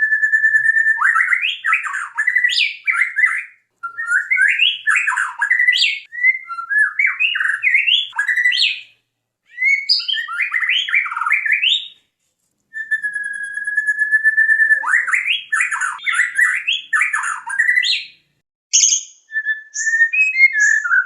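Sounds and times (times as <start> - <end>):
songbird singing varied phrases: 0.2 - 8.9, 9.5 - 11.9, 12.8 - 21.0.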